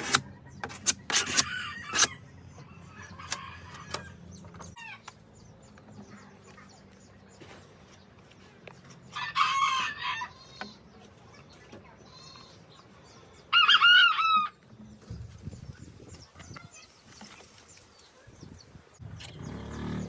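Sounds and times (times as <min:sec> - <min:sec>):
rooster crowing: 0:09.2 - 0:10.4.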